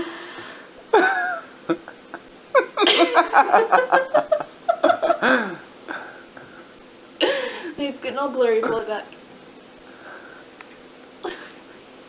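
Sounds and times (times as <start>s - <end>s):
person laughing: 0.9s - 5.6s, 11.2s - 11.6s.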